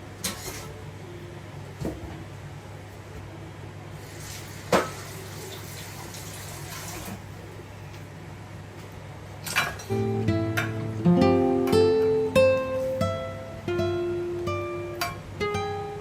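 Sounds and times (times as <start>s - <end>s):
soft hiss: 0.0s - 16.0s
kitchen clatter: 0.2s - 0.8s, 4.3s - 7.2s, 9.4s - 9.9s
acoustic guitar music: 9.4s - 16.0s.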